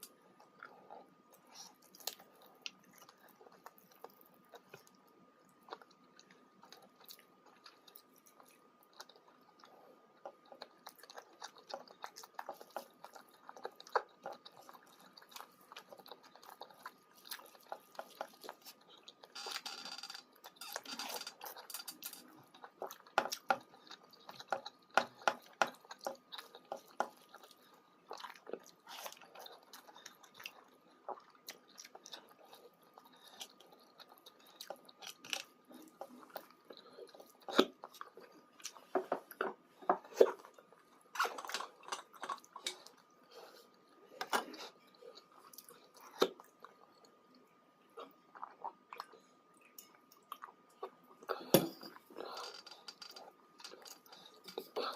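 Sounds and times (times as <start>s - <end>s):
person chewing food: 0.0s - 54.9s.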